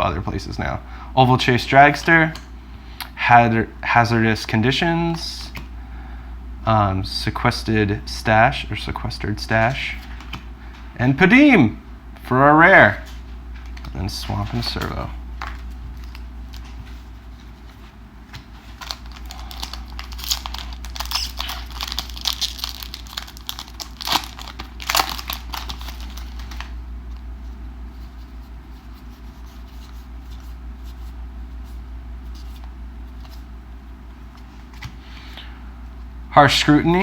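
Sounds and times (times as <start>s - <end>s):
low steady hum: 0.0s - 37.0s
cards being handled: 13.0s - 33.5s
wrapper tearing and crinkling: 18.7s - 26.8s.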